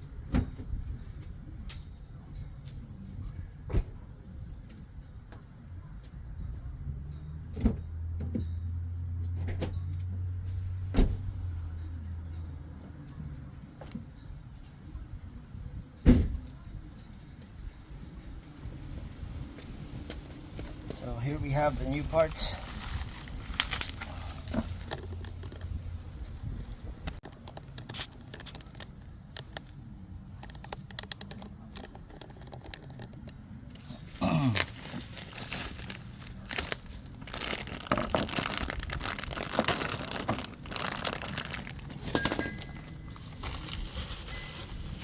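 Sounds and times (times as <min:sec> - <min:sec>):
plastic packaging crinkling and tearing: 0:21.6 - 0:25.5, 0:34.0 - 0:42.1, 0:43.1 - 0:45.0.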